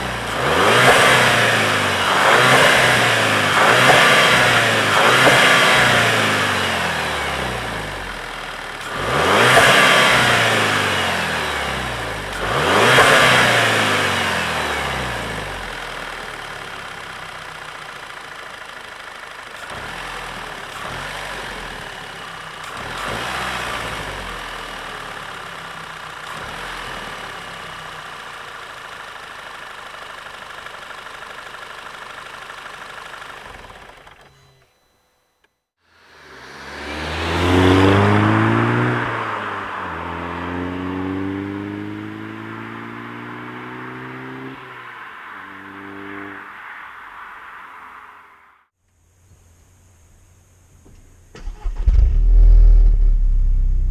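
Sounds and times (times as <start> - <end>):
car engine revving: 0.0 - 16.4, 36.0 - 48.4, 51.4 - 53.9.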